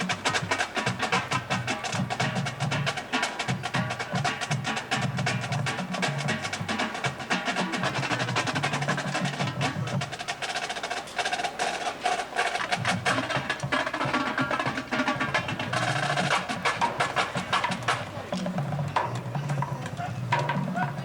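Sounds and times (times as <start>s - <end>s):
rapid snare drum strokes: 0.0s - 21.0s.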